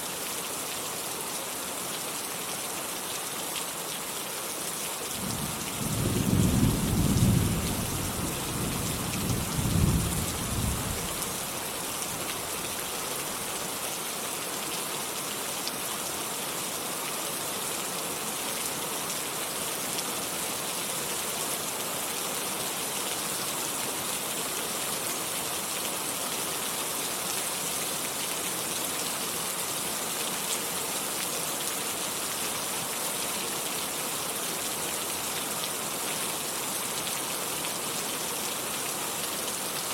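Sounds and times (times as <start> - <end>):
heavy rain falling: 2.9 - 14.9.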